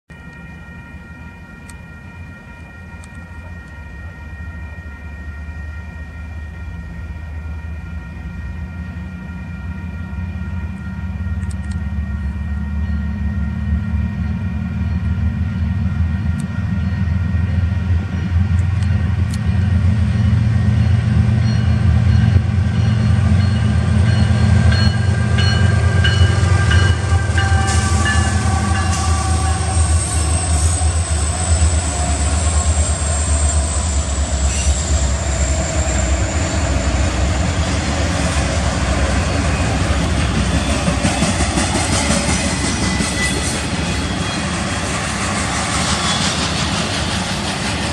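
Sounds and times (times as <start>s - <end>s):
train horn chord: 0.1s - 18.4s, 19.5s - 37.6s
diesel locomotives passing: 0.1s - 47.9s
train cars rolling on rails: 0.1s - 47.9s.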